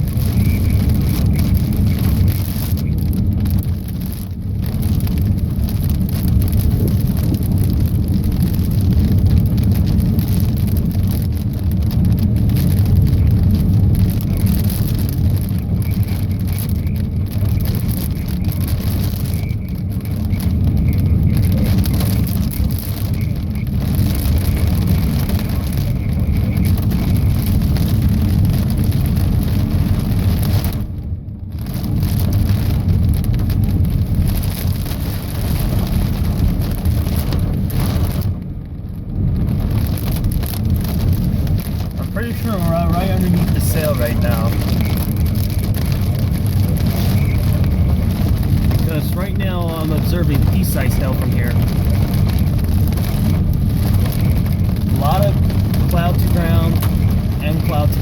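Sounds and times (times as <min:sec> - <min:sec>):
heavy rain pelting down: 0:00.0 - 0:58.0
wind rumbling on microphone: 0:00.0 - 0:58.0.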